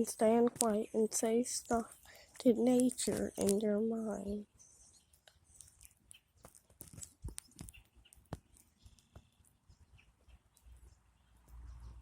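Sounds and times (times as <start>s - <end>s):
faint bird chirps: 3.1s - 12.0s
sharp clicks and taps: 5.1s - 9.6s.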